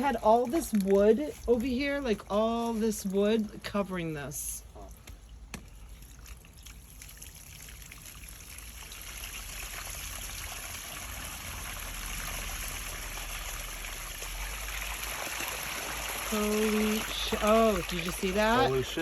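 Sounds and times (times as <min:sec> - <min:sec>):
water rushing from sewer line: 0:00.0 - 0:19.0.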